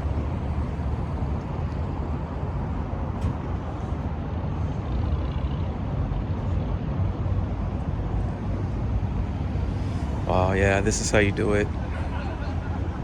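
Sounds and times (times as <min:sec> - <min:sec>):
engines idling: 0:00.0 - 0:13.0
low rumble of traffic: 0:00.0 - 0:13.0.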